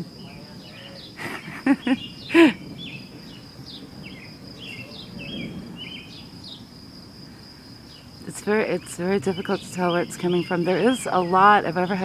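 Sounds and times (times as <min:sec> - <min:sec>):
high insect drone: 0:00.0 - 0:12.0
bird chirps: 0:00.2 - 0:06.6, 0:08.8 - 0:11.8.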